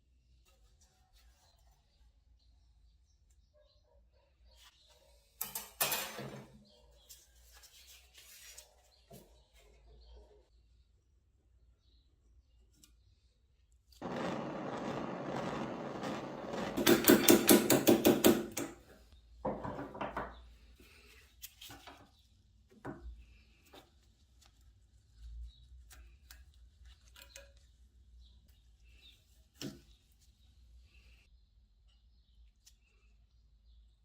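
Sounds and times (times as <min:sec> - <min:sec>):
handling noise: 0:14.0 - 0:18.7.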